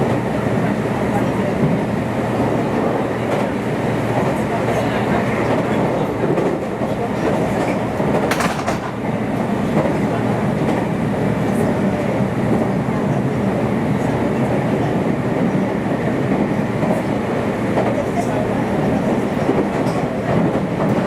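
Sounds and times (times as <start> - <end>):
train running gear rumble: 0.0 - 21.0
clickety-clack from rails: 2.4 - 13.2, 15.4 - 21.0.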